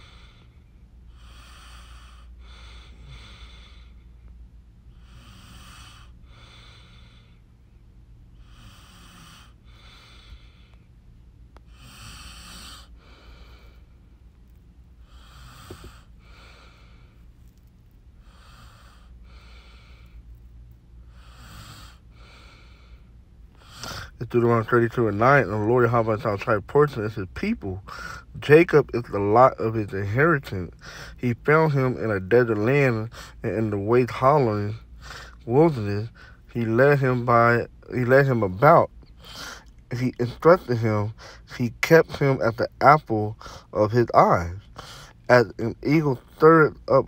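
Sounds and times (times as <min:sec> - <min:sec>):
person breathing: 0:00.0 - 0:04.3, 0:04.9 - 0:07.6, 0:08.4 - 0:11.0, 0:11.6 - 0:14.3, 0:15.0 - 0:20.4, 0:21.0 - 0:24.2, 0:27.8 - 0:28.4, 0:30.7 - 0:31.2, 0:33.1 - 0:33.4, 0:34.7 - 0:35.5, 0:36.1 - 0:36.5, 0:39.0 - 0:39.8, 0:41.1 - 0:41.5, 0:43.3 - 0:43.8, 0:44.6 - 0:45.3
low steady hum: 0:00.0 - 0:47.0.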